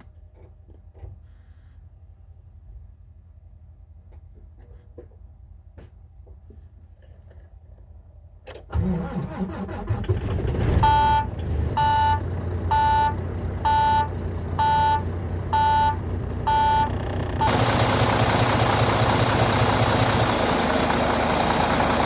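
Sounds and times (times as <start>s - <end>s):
diesel truck engine idling: 8.8s - 22.0s
cab warning beeper: 10.8s - 18.0s.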